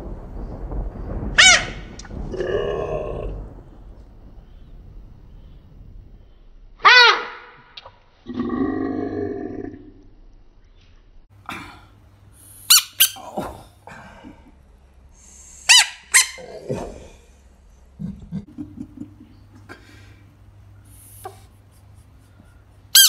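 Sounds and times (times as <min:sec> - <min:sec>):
squeaky toy squeaks: 0:12.7 - 0:13.2, 0:15.7 - 0:16.4.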